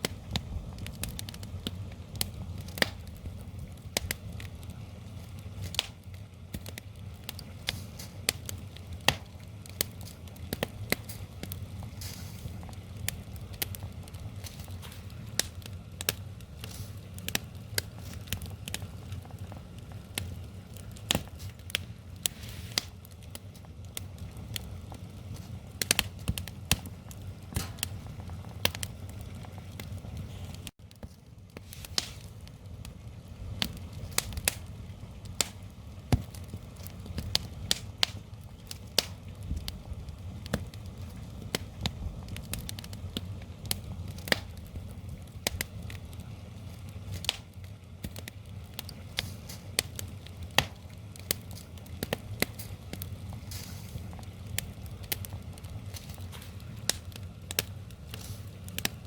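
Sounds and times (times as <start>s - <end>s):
low rumble of burning logs: 0.0s - 59.0s
wood fire crackling and popping: 0.0s - 59.0s.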